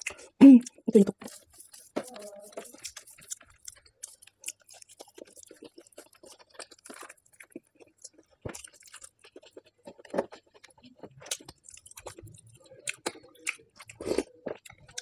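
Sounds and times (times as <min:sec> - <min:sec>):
wet mouth chewing clicks: 0:00.0 - 0:15.0.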